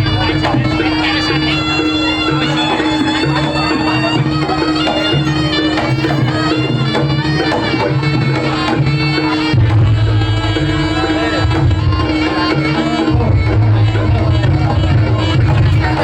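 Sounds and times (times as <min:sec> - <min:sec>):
held drone: 0:00.0 - 0:08.9
shrill reed wind melody: 0:00.0 - 0:09.5
drum and gong pulse: 0:00.0 - 0:12.2.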